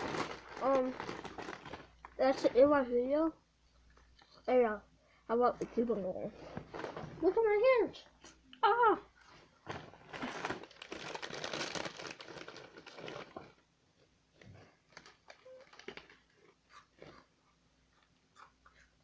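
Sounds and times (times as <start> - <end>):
snack bag crinkling: 0.0 - 2.4, 9.6 - 13.6, 14.6 - 17.3.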